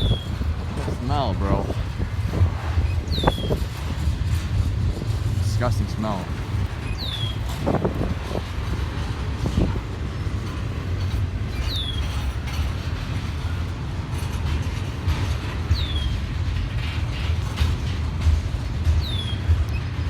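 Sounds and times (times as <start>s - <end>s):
train wheels squealing: 0.0s - 0.4s, 2.8s - 4.1s, 6.8s - 7.8s, 11.5s - 12.8s, 15.7s - 16.3s, 18.9s - 20.0s
freight train rumbling: 0.0s - 20.0s.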